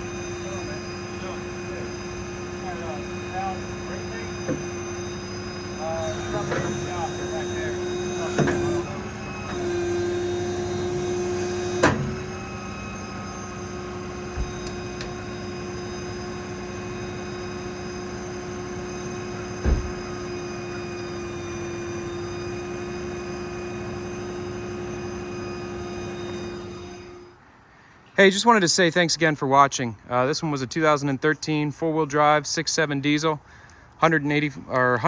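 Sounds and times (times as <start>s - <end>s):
diesel engine hydraulic whine: 0.0s - 28.1s
low thump: 19.6s - 20.1s.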